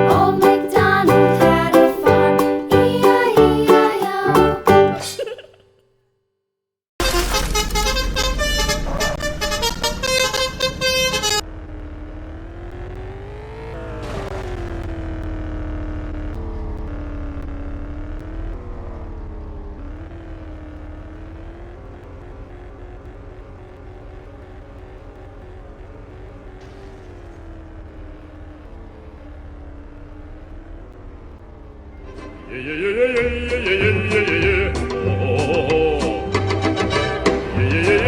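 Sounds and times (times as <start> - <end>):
vehicle horn honking: 7.0 - 11.4
vehicle engine running: 11.4 - 38.0.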